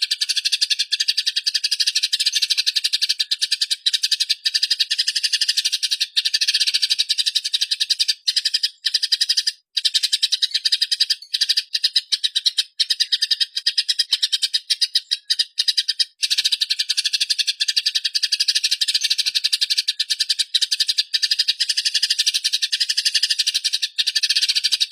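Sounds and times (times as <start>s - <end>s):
sparrows chattering: 0.0s - 24.9s.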